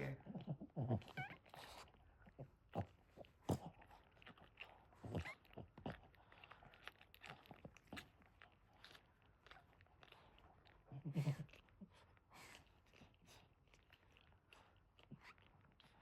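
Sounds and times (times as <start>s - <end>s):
dog licking and chewing: 0.0s - 16.0s
puppy squeak: 1.1s - 1.6s.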